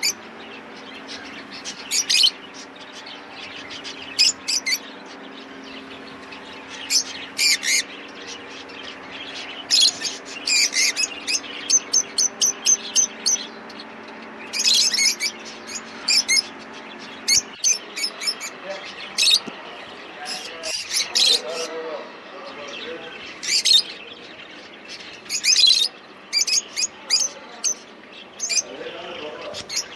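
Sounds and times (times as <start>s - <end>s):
small birds chirping: 0.0s - 29.9s
steady low hum: 0.0s - 29.9s.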